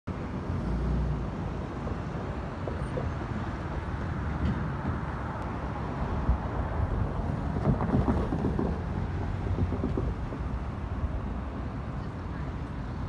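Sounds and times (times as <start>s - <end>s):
train rumbling on track: 0.6s - 13.0s
wind buffeting microphone: 5.9s - 11.9s.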